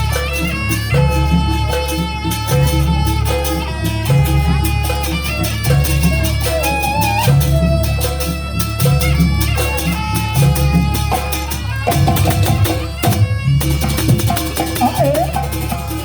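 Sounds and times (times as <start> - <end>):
drums and percussion beat: 0.0 - 16.0
wavering sliding lead melody: 0.0 - 16.0.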